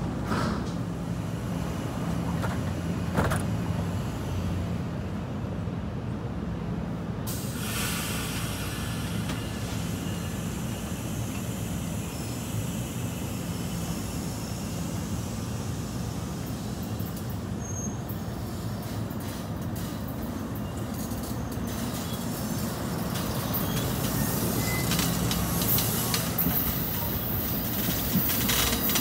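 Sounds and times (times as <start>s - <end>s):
train equipment humming: 0.0s - 29.0s
air brakes hissing: 0.2s - 1.4s, 7.3s - 29.0s.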